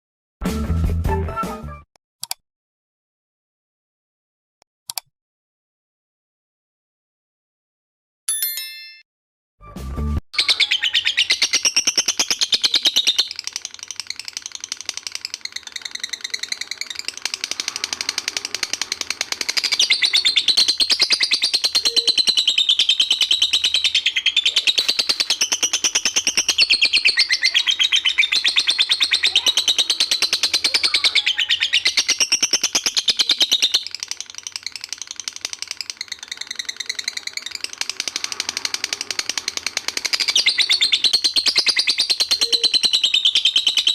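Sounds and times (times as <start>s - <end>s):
lovebird chattering trill: 10.4s - 43.9s.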